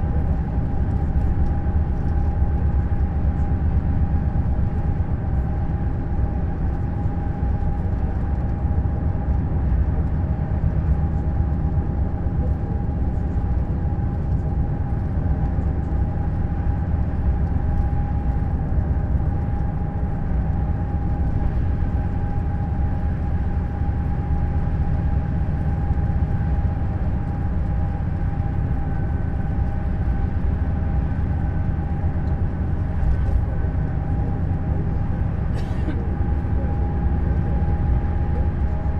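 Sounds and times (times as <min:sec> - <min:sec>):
coach engine rumble: 0:00.0 - 0:38.9
steady whine: 0:10.7 - 0:38.9.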